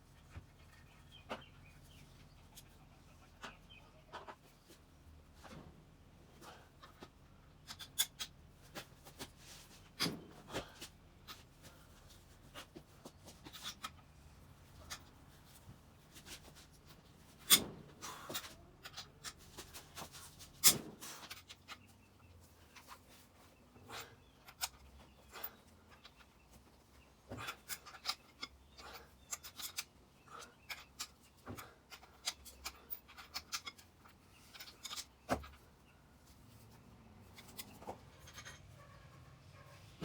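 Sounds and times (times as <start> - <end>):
hand tools clicking and knocking: 23.9 - 35.6, 37.2 - 38.8.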